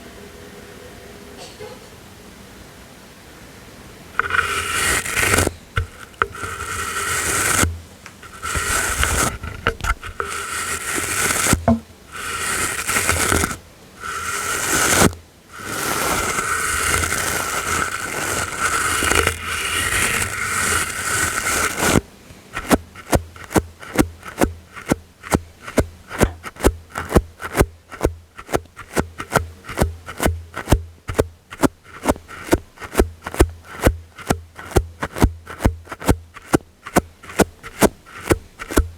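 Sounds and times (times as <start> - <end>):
soft brush strokes: 4.2 - 38.9.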